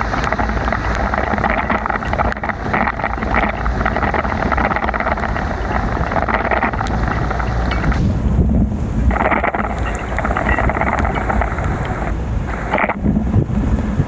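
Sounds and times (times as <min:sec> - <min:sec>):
heavy rain spattering: 0:00.0 - 0:13.8
wind buffeting microphone: 0:00.0 - 0:14.0.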